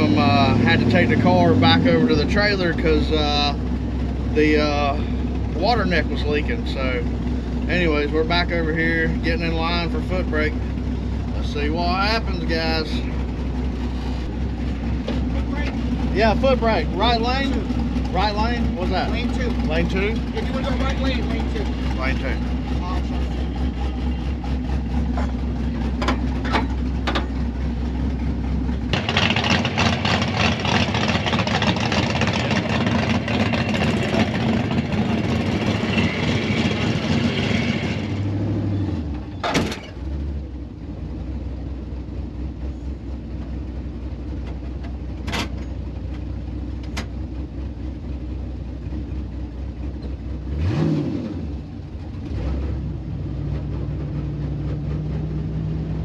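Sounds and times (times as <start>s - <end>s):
car engine revving: 0.0s - 40.6s, 49.9s - 56.0s
car engine idling: 0.0s - 50.8s, 51.5s - 56.0s.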